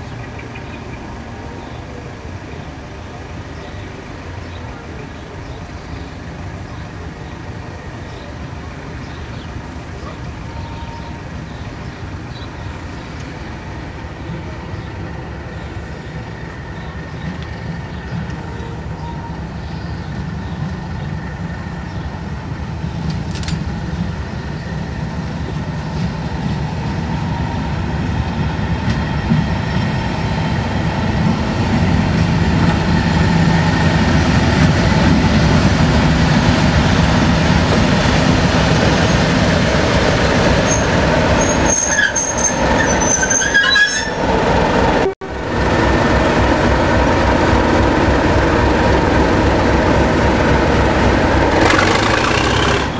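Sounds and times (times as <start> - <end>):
diesel locomotive engine running: 0.0 - 52.9
train wheels squealing: 40.2 - 44.3.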